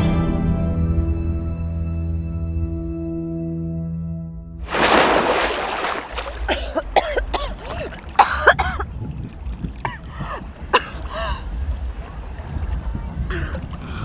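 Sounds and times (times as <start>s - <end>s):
person coughing: 6.4s - 8.9s, 10.7s - 11.1s
person clearing throat: 6.5s - 8.9s.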